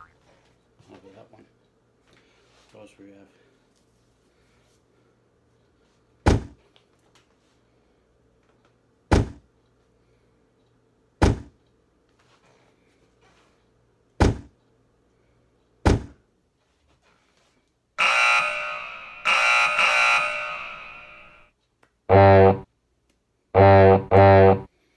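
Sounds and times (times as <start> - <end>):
ringing alarm bell: 18.0 - 21.4.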